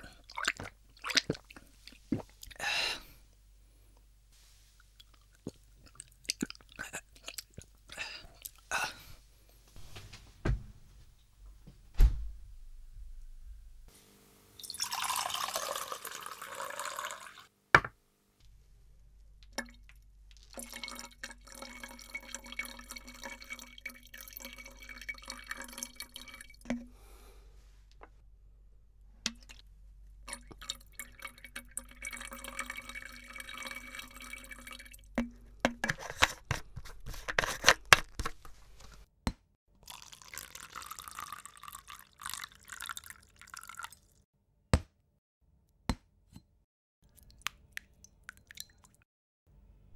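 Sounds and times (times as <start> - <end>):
water dripping: 0.0 - 2.6, 19.5 - 26.9, 30.3 - 35.4, 47.2 - 49.0
water pouring: 0.0 - 2.6, 14.6 - 17.5, 20.5 - 26.8, 30.3 - 35.1, 39.9 - 44.1
water trickling: 14.6 - 17.5, 20.5 - 26.8, 30.3 - 35.1, 39.9 - 44.0.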